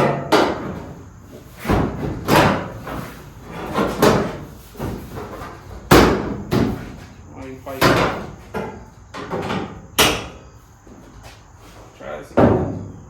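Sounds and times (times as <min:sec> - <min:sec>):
metal panels banging with ringing: 0:00.0 - 0:10.6, 0:12.2 - 0:13.0.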